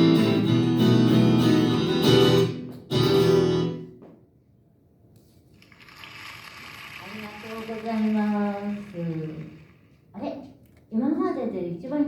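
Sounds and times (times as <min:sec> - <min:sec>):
acoustic guitar strumming: 0:00.0 - 0:04.0.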